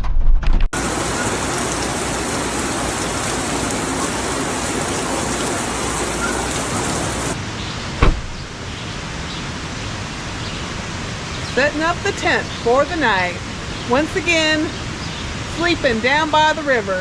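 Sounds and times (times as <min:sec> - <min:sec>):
rain falling: 0:00.7 - 0:07.4
brief thump: 0:08.0 - 0:08.4.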